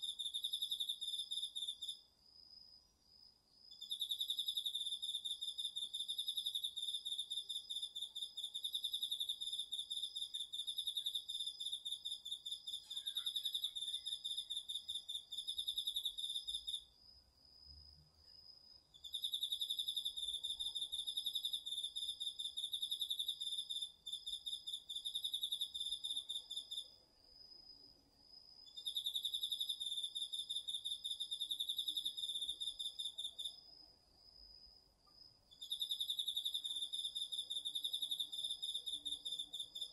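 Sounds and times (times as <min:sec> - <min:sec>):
insect pulsing trill: 0:03.8 - 0:16.8.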